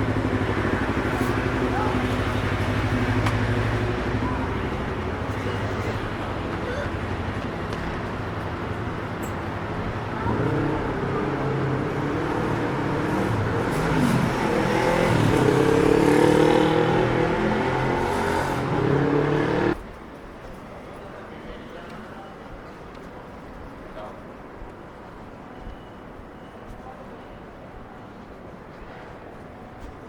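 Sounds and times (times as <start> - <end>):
vehicle engine running close by: 0.0 - 19.8
street traffic: 0.0 - 20.7.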